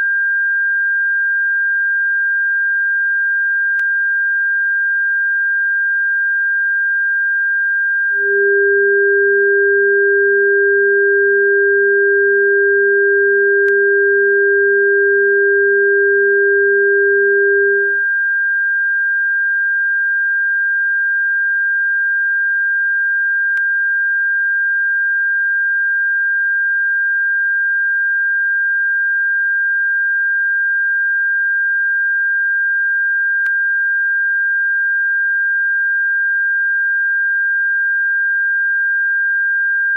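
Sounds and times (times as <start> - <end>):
lower steady tone: 7.4 - 18.2
high-pitched pure tone: 8.2 - 18.0.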